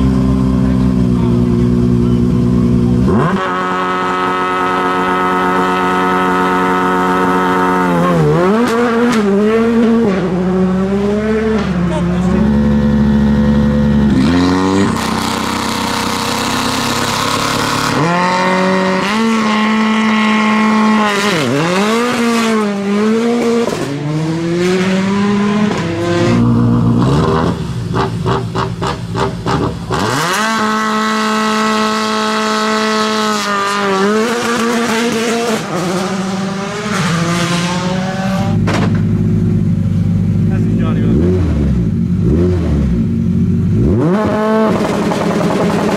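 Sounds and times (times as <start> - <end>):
rally car engine revving: 0.0 - 45.9
engine popping stutter: 24.7 - 43.1, 43.8 - 45.9.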